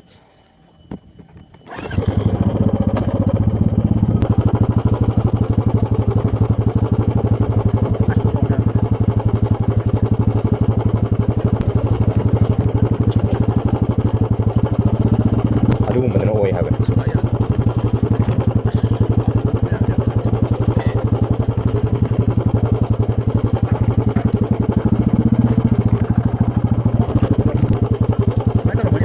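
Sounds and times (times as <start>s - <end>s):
motorcycle engine running: 1.7s - 29.0s.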